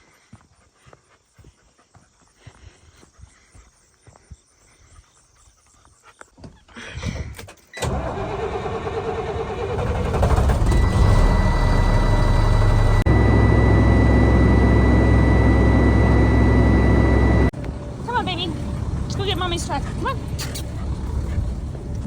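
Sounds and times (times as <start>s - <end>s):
vehicle engine idling: 7.8s - 22.0s.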